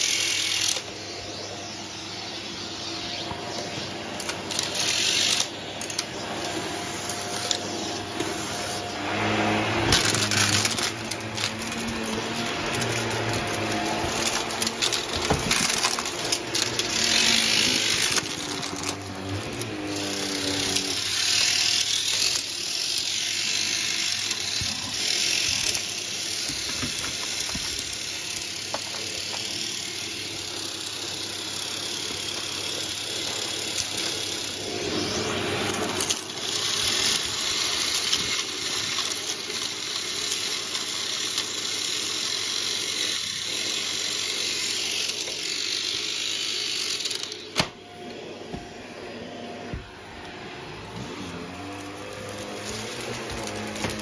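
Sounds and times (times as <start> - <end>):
vacuum cleaner running: 0.0 - 54.0
grit rattling up a tube: 9.2 - 21.0.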